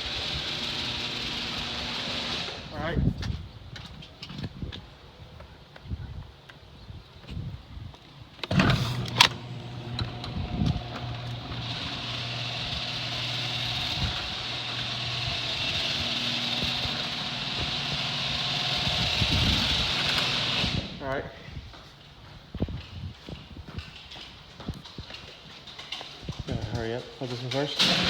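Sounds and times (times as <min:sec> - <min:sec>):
garage door opener clicks: 0:00.0 - 0:02.7, 0:08.4 - 0:21.0, 0:27.2 - 0:28.0
garage door motor hum: 0:00.0 - 0:02.8, 0:08.4 - 0:21.0, 0:27.2 - 0:28.0
garage door travelling: 0:08.4 - 0:21.0, 0:25.2 - 0:28.0.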